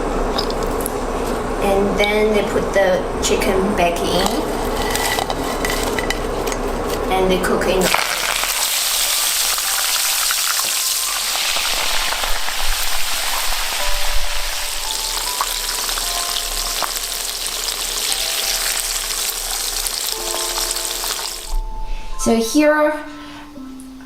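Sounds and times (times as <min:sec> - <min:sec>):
food deep-frying in hot oil: 0:07.8 - 0:21.6.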